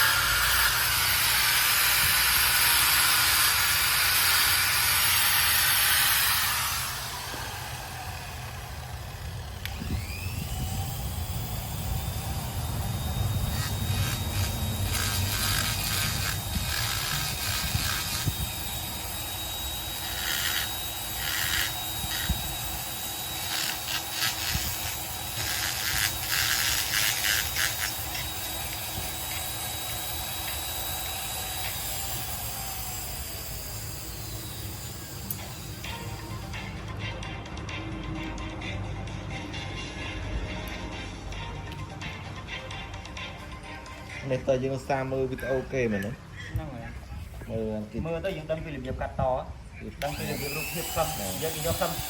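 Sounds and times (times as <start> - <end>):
power tool motor whining: 0.0 - 36.8, 50.0 - 52.0.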